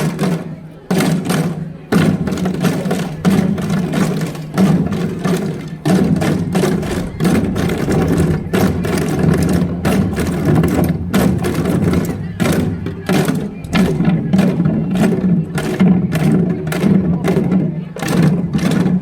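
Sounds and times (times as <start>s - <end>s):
hourglass drum strokes: 0.0s - 17.5s
low backing sound: 1.9s - 16.0s.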